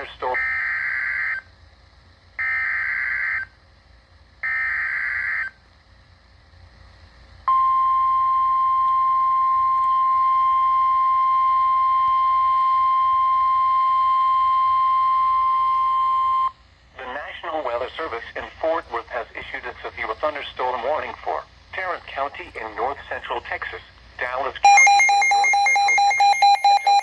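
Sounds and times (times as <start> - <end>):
steady warning alarm tone: 0.3 - 1.5, 2.4 - 3.5, 4.4 - 5.6, 7.5 - 16.6, 24.6 - 27.0.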